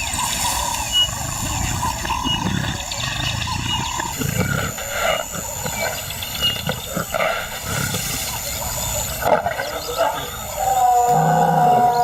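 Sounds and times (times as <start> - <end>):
lion roaring and grunting: 9.2 - 12.0.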